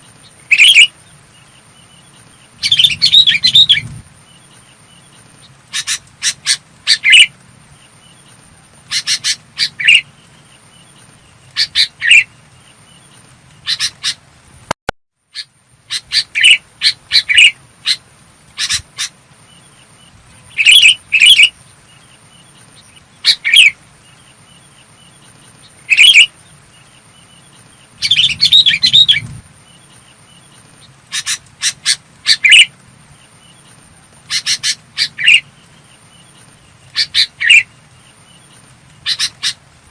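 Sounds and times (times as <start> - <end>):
bird singing short phrases: 27.2 - 32.7.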